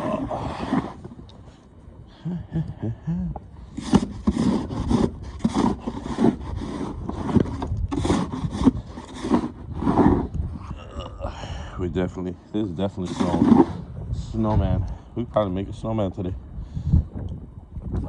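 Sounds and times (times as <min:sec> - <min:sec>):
snow shovel scraping snow: 0:00.0 - 0:01.1, 0:03.8 - 0:10.3, 0:13.0 - 0:13.8.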